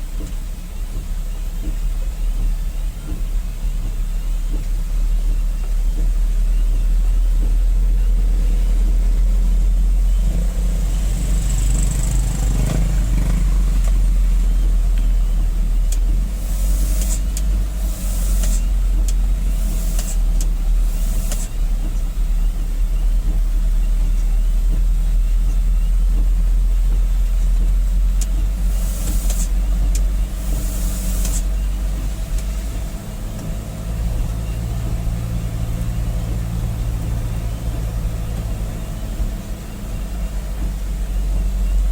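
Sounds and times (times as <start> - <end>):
diesel truck engine under load: 0.0 - 41.9
short hissing bursts: 16.4 - 18.7, 28.7 - 29.6, 30.4 - 31.5.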